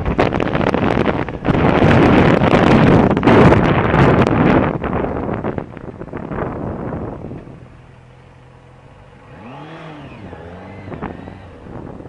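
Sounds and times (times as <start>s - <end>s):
wind rush from riding: 0.0s - 12.0s
motorcycle engine idling: 4.6s - 12.0s.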